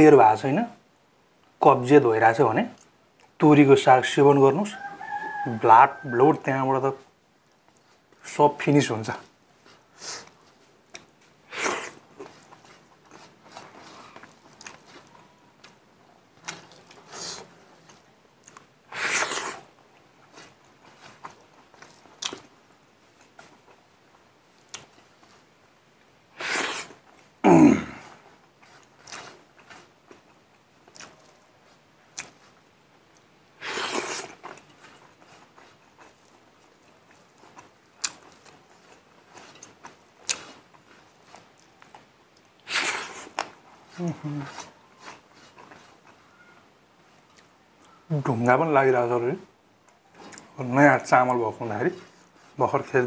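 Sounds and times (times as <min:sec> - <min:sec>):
wet chewing and mouth clicks: 0:09.6 - 0:25.4, 0:28.2 - 0:46.6, 0:49.8 - 0:50.6.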